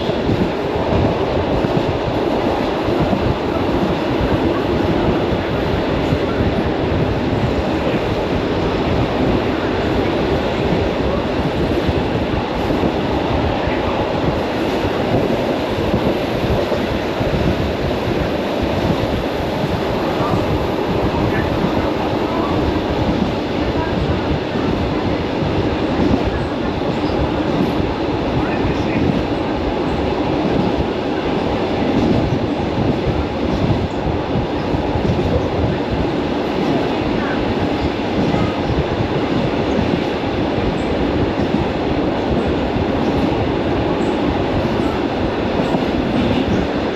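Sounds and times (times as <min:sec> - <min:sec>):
electric train rumbling on track: 0:00.0 - 0:46.9.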